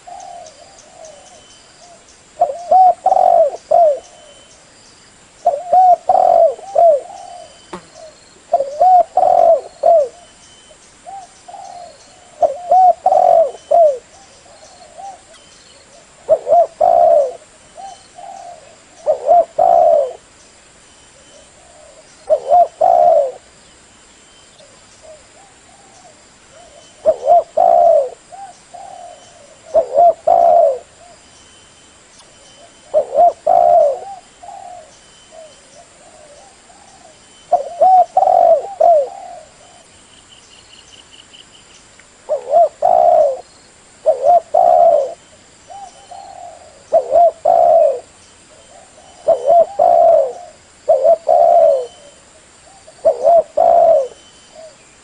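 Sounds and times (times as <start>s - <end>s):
dove cooing: 0.0s - 4.5s, 5.4s - 10.4s, 11.0s - 20.3s, 21.2s - 23.5s, 24.6s - 31.2s, 32.6s - 39.9s, 42.3s - 54.8s.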